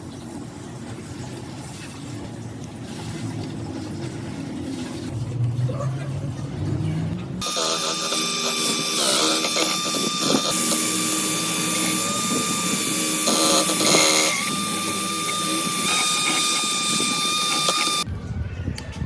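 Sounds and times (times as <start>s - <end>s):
power tool whining and grinding: 7.4s - 18.1s.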